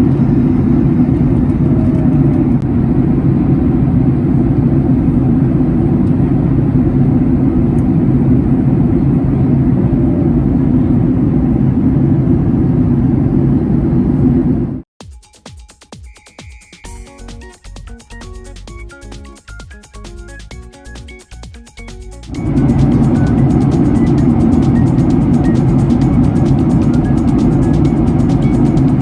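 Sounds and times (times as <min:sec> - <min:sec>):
jet engine roar in aircraft cabin: 0:00.0 - 0:14.8, 0:22.3 - 0:29.0.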